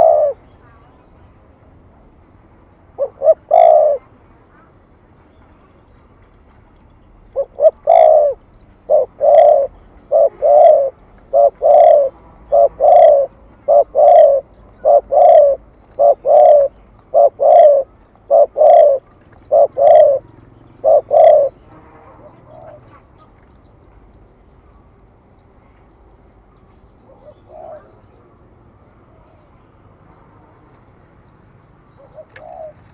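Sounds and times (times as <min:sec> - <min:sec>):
dove cooing: 0:00.0 - 0:00.8, 0:03.0 - 0:04.1, 0:07.3 - 0:23.3, 0:27.0 - 0:28.3, 0:31.9 - 0:32.9.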